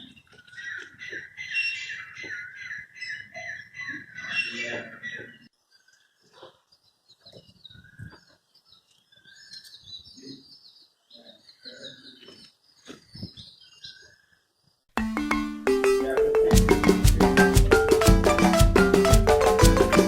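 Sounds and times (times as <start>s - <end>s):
small birds chirping: 0.0s - 14.9s
loud music with mallet percussion: 15.0s - 20.0s.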